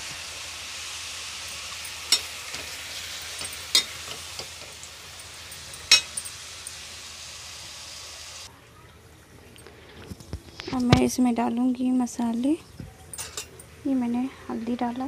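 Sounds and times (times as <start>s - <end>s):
chicken sizzling in oil: 0.0s - 8.5s
metal ladle clinking against pan: 1.8s - 6.4s, 13.1s - 13.6s.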